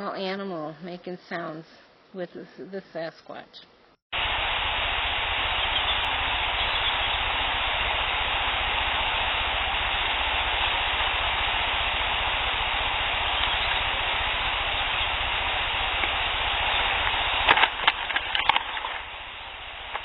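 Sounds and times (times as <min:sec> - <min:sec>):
steady hiss: 0:04.2 - 0:20.0.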